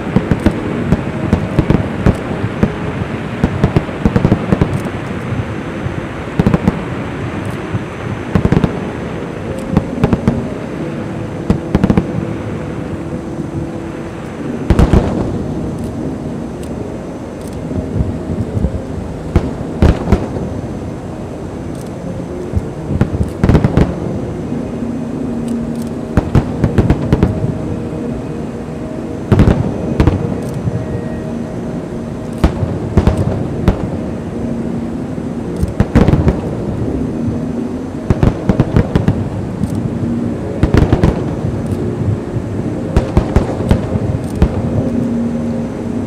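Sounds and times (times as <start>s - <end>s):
fireworks bangs: 0.0s - 9.0s, 11.5s - 12.6s, 14.7s - 15.5s, 17.8s - 20.6s, 22.5s - 24.1s, 29.3s - 31.0s, 32.3s - 34.1s, 35.6s - 36.7s, 38.0s - 39.9s, 40.6s - 42.2s, 42.9s - 45.0s
steady background noise: 0.0s - 46.0s.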